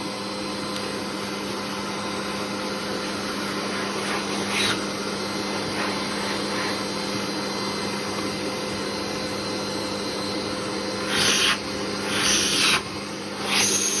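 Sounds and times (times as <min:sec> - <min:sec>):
vacuum cleaner running: 0:00.0 - 0:14.0
vacuum hissing surges: 0:11.0 - 0:14.0.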